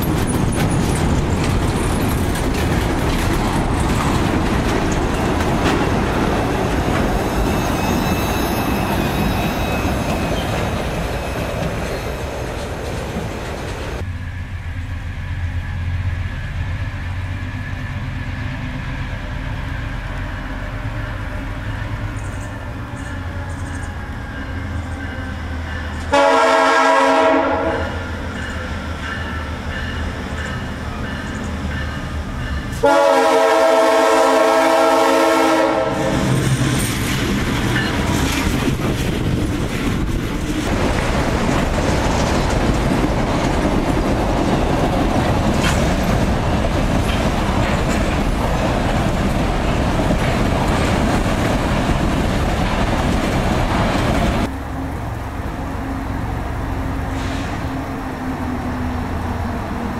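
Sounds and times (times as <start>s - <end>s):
wheel clatter on rails: 0.0s - 14.0s, 36.6s - 54.5s
diesel locomotive engine rumble: 0.0s - 59.9s
train horn blasts: 25.9s - 28.2s, 32.8s - 36.4s.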